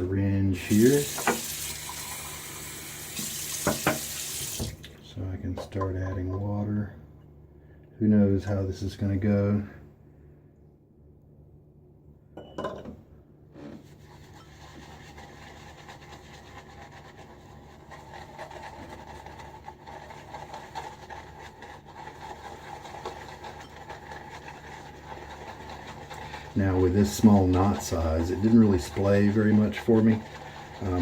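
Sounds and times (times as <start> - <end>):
shaving brush swishing lather: 0.6 - 1.8, 13.9 - 31.0.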